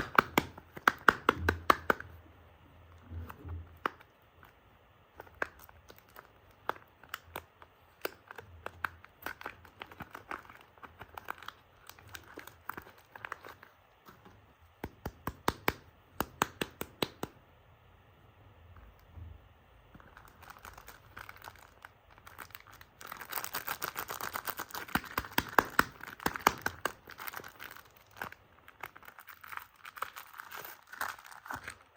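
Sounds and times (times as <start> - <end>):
wrapper crinkling and tearing: 5.2 - 13.8, 20.0 - 31.9.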